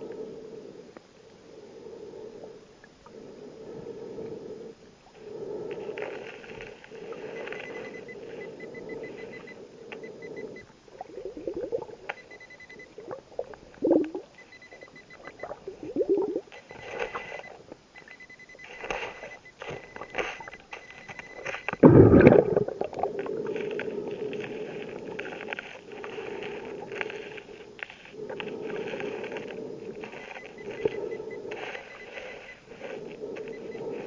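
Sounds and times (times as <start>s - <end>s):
scuba breathing: 0.0s - 34.0s
metal detector rapid high beeps: 7.1s - 13.2s, 13.9s - 21.8s, 30.0s - 34.0s
bubbling exhaust bursts: 12.8s - 14.4s, 15.0s - 17.3s, 21.7s - 34.0s.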